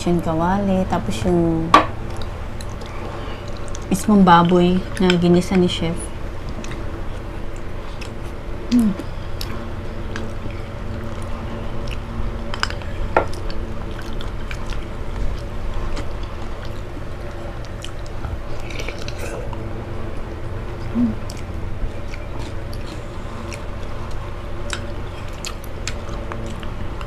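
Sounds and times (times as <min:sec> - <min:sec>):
low hum: 0:00.0 - 0:27.0
chewing and slurping noodles: 0:09.1 - 0:27.0.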